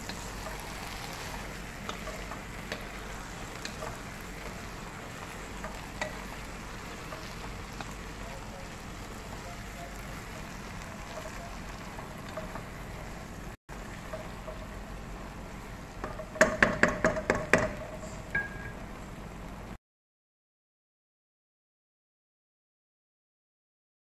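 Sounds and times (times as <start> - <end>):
wooden spoon tapping pot: 0.0 - 13.0, 14.0 - 14.8, 16.0 - 18.8
food sizzling in a pot: 0.0 - 19.8.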